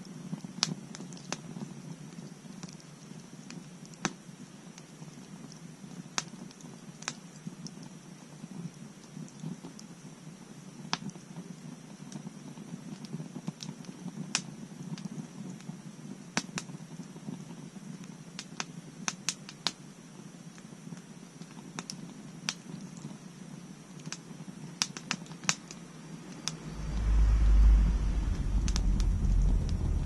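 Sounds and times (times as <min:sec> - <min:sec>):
low rumble of fire: 0:22.8 - 0:30.0.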